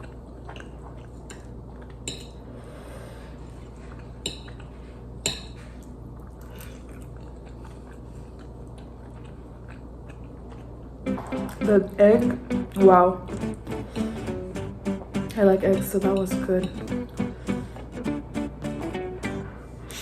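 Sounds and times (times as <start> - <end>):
quiet chewing: 0.0 - 2.3, 3.5 - 11.0
steady low hum: 0.0 - 20.0.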